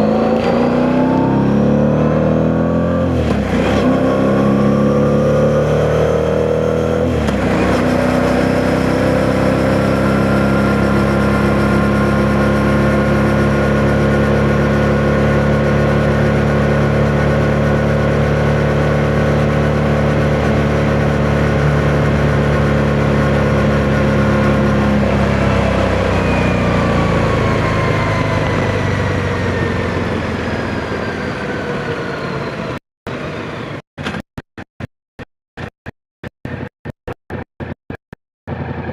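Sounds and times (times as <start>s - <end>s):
motorcycle engine revving: 0.0s - 32.8s
wind noise on microphone: 25.0s - 31.8s.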